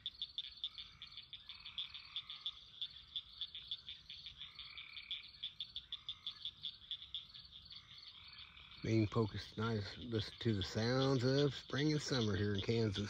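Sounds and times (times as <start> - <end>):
frogs low trills: 0.0 - 13.0
frogs short high calls: 0.0 - 13.0.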